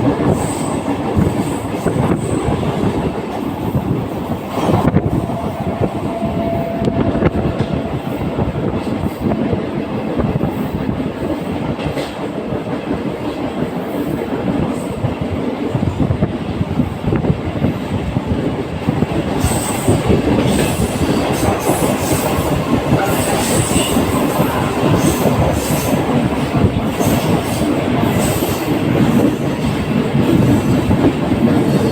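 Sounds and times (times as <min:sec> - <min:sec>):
train wheels rumbling on rails: 0:00.0 - 0:31.9
train wheels squealing: 0:04.5 - 0:09.4.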